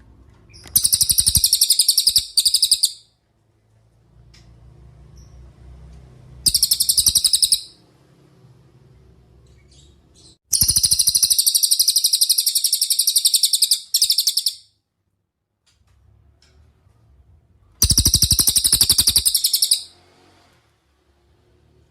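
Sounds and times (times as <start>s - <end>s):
bird trilling: 0.5s - 3.1s, 6.4s - 7.8s, 9.6s - 14.7s, 17.8s - 20.0s.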